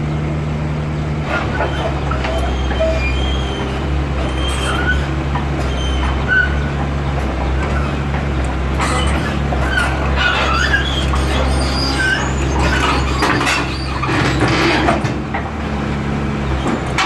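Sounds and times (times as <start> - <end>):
diesel engine running: 0.0 - 17.0
high squeaks: 1.4 - 6.7, 8.7 - 15.1.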